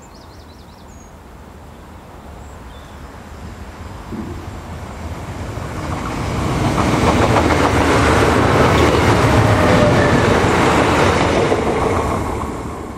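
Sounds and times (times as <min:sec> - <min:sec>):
train passing at speed: 0:01.1 - 0:12.9
wheels clicking on rail: 0:04.1 - 0:12.9.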